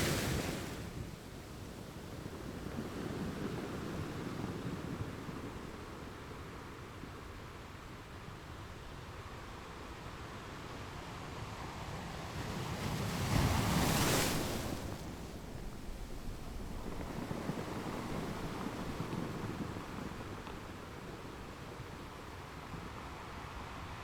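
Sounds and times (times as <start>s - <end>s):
ocean waves breaking: 0.0s - 5.9s, 12.4s - 22.8s.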